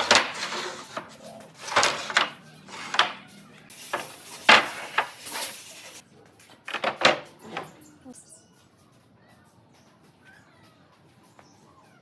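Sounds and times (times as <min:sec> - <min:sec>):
wooden pieces knocking together: 0:00.0 - 0:03.2, 0:03.9 - 0:05.5, 0:06.6 - 0:07.4.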